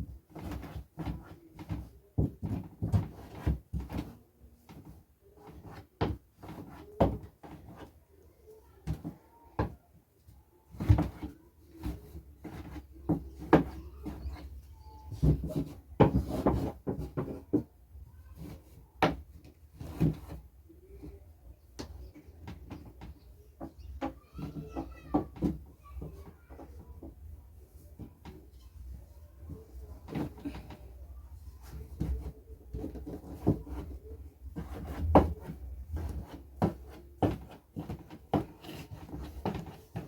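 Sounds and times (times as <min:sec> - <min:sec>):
knocks and thumps: 0:10.7 - 0:17.8, 0:21.7 - 0:27.4, 0:31.6 - 0:40.0.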